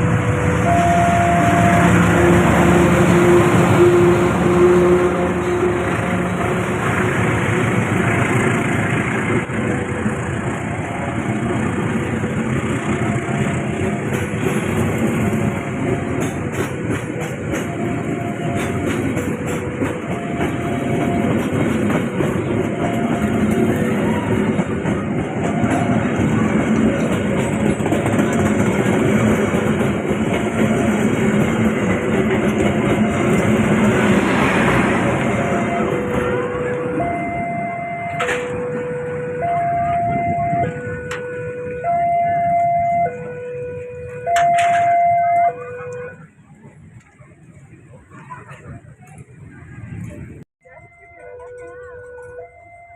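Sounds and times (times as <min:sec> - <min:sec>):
train wheels rumbling on rails: 0:00.0 - 0:50.5
wheels clicking over rail joints: 0:11.2 - 0:37.2, 0:51.2 - 0:52.9.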